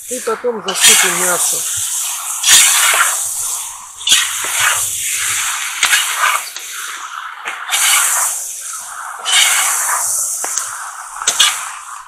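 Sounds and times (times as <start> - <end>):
vegetables sizzling in hot oil: 0.0 - 12.0
skimmer scraping and knocking pot: 0.2 - 6.5.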